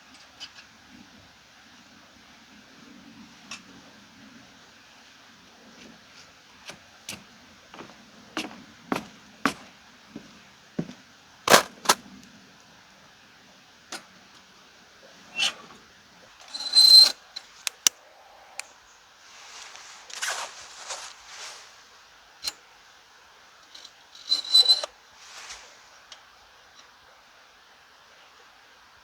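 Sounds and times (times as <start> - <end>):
rustling: 11.5 - 12.0, 18.6 - 22.1, 24.3 - 26.1.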